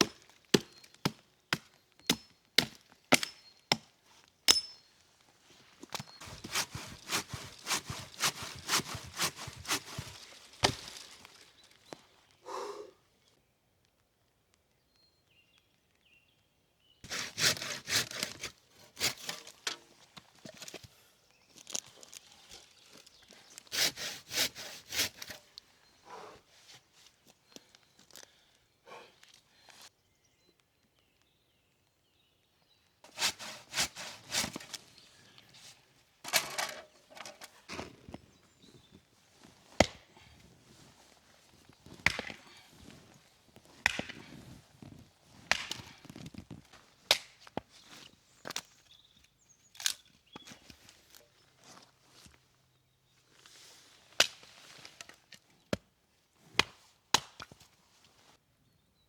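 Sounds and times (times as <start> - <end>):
firewood being chopped: 0.0 - 3.9, 5.9 - 11.4, 39.7 - 40.4, 41.8 - 47.7, 56.6 - 57.6.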